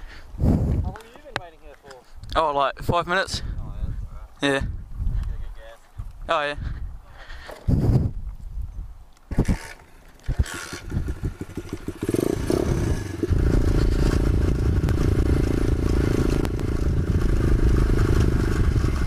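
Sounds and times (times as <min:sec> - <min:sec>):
motorbike engine idling and revving: 0:09.3 - 0:19.0.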